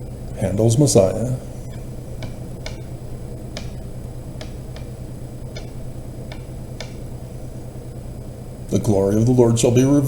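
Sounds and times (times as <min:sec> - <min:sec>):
steady low hum: 0:00.0 - 0:10.0
light ticking clicks: 0:05.5 - 0:07.0.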